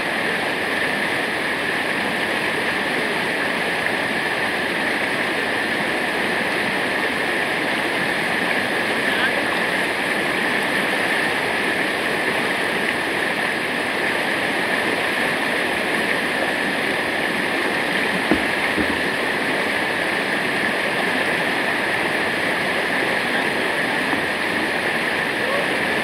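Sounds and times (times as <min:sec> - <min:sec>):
water rushing: 0:00.0 - 0:26.0
brief knock: 0:18.3 - 0:19.1.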